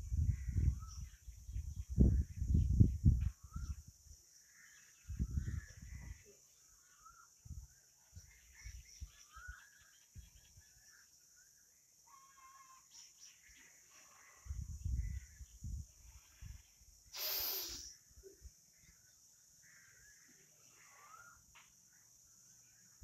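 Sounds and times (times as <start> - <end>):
steady high hiss: 15.3 - 19.0.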